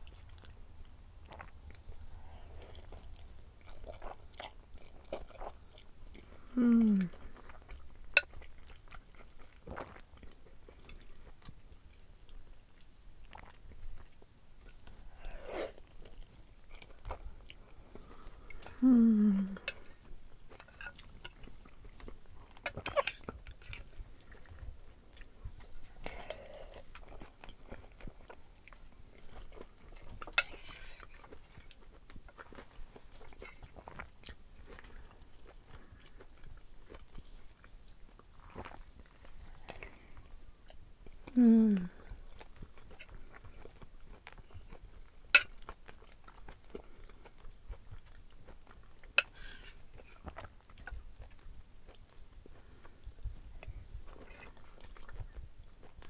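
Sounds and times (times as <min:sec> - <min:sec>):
chewing and wet mouth clicks: 0:50.0 - 0:52.2.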